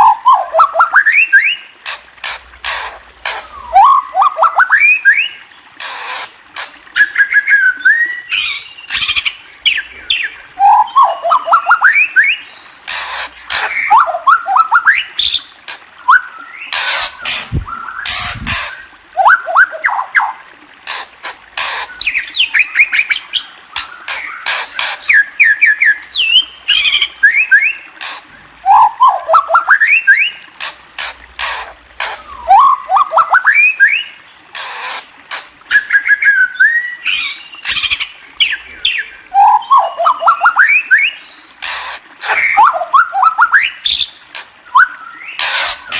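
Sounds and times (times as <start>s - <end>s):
bird harsh raspy calls: 0.0s - 7.6s, 8.2s - 15.8s, 16.4s - 45.9s
songbird whistling: 7.0s - 9.2s, 10.6s - 12.4s, 16.0s - 16.5s, 25.1s - 27.8s, 28.7s - 30.4s, 35.7s - 41.2s, 44.7s - 45.4s.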